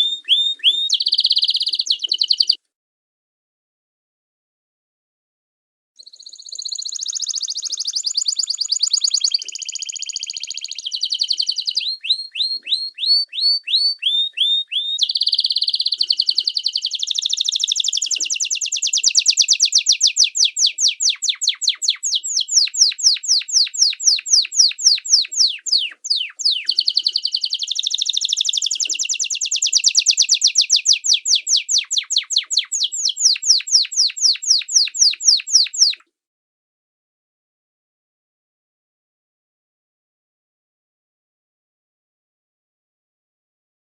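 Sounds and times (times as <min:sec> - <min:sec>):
songbird singing trills: 0:00.0 - 0:02.6, 0:06.0 - 0:36.0.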